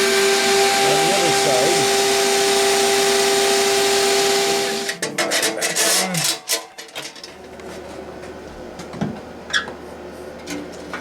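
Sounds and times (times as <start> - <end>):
vacuum cleaner running: 0.0 - 5.0
metal parts clattering: 5.1 - 7.4.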